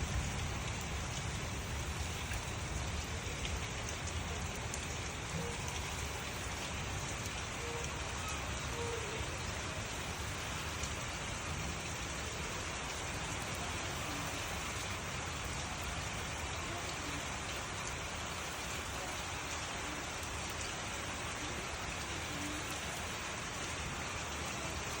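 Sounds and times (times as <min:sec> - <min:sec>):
faint drips: 0:00.0 - 0:25.0
steady rain falling: 0:00.0 - 0:25.0.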